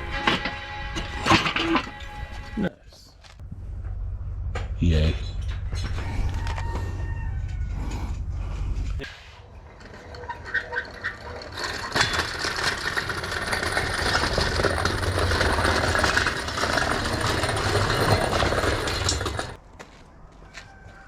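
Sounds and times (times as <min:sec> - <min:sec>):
dense mechanical rattle: 0:03.4 - 0:09.0, 0:09.6 - 0:19.6.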